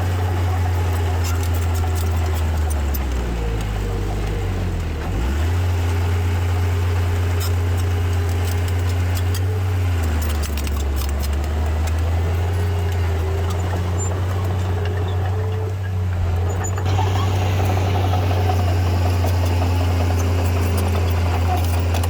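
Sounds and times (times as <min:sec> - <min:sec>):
diesel machinery engine running: 0:00.0 - 0:22.0
clicks and rattles: 0:00.1 - 0:22.0.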